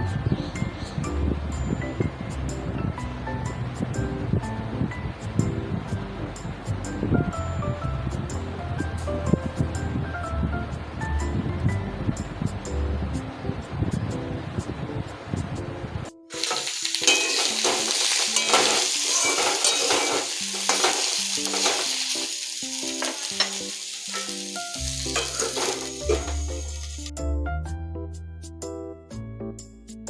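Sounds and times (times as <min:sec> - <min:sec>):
background music: 0:00.0 - 0:13.4, 0:16.1 - 0:30.0
food sizzling and crackling: 0:16.3 - 0:27.1.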